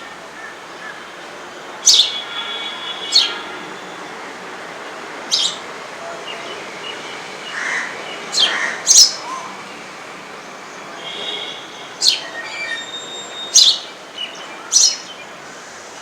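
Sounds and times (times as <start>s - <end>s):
sparrows chirping: 1.8s - 3.5s, 5.2s - 15.4s.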